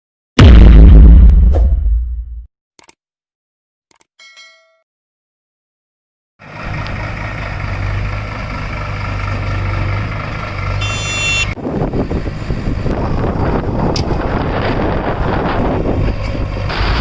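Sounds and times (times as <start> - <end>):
heavy diesel engine running: 6.4 - 17.0
short high electronic beep: 10.8 - 11.6.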